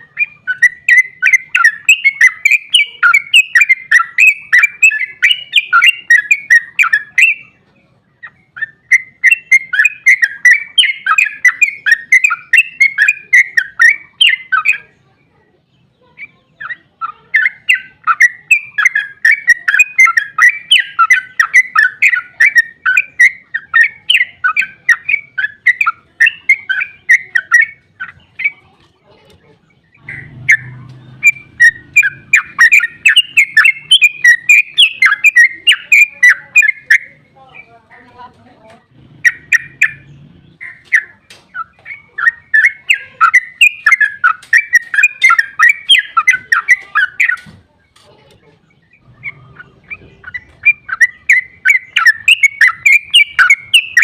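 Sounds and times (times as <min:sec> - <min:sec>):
bird singing bubbling notes: 0:00.0 - 0:15.0, 0:16.2 - 0:28.6, 0:29.7 - 0:37.7, 0:38.9 - 0:47.5, 0:48.7 - 0:54.0.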